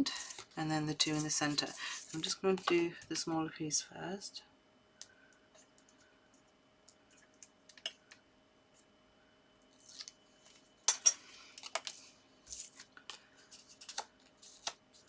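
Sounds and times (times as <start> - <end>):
paper and tape handling: 0.0 - 2.8, 11.6 - 15.0.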